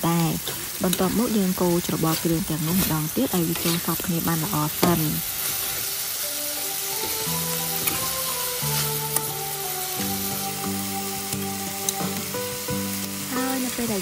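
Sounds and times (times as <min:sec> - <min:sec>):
chicken sizzling in a wok: 0:00.0 - 0:14.0
metal spatula scraping a pan: 0:02.1 - 0:04.0
soft background music: 0:04.8 - 0:14.0.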